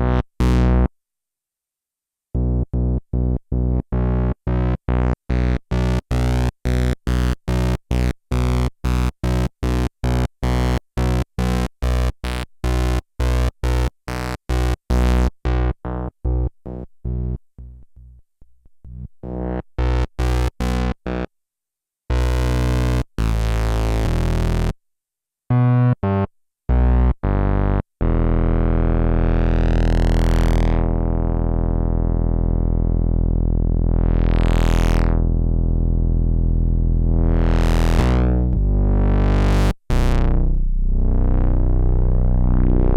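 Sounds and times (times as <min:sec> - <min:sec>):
analog synthesizer: 0:28.0 - 0:42.9.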